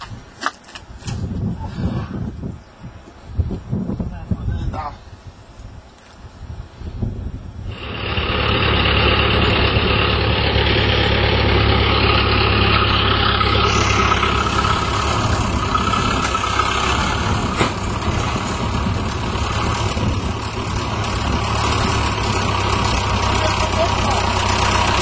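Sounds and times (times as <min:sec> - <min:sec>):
tractor engine running: 0:07.7 - 0:25.0.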